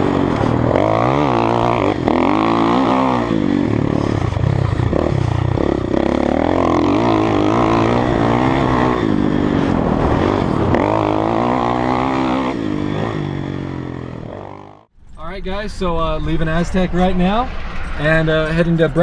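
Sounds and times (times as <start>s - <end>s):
dirt bike engine revving: 0.0s - 14.9s.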